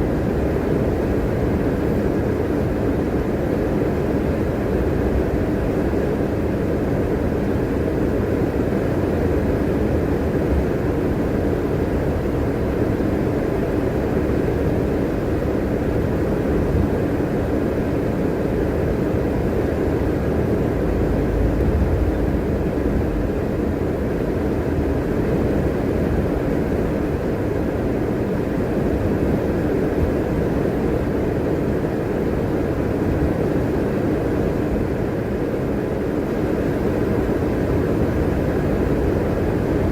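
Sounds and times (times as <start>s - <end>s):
bus engine and road noise: 3.6s - 27.6s, 36.3s - 39.9s.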